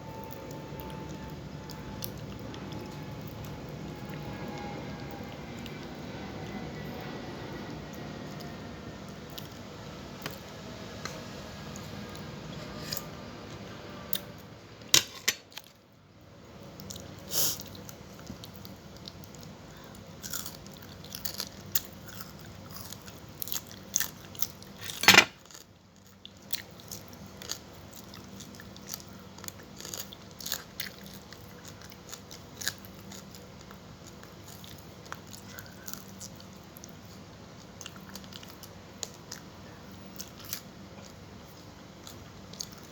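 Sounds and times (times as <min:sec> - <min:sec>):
person chewing food: 0:16.8 - 0:42.9.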